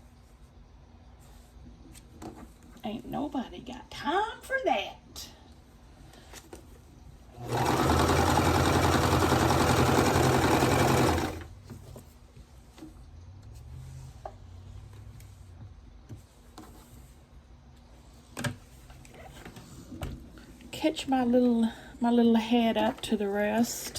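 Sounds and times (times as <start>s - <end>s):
sewing machine stitching: 7.4s - 11.5s.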